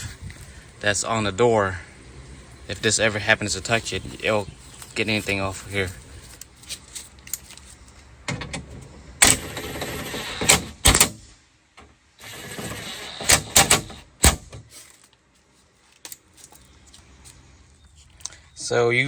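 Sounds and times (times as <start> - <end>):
rustling: 3.7 - 10.5, 14.4 - 18.2
sharp clicks and knocks: 12.6 - 14.7.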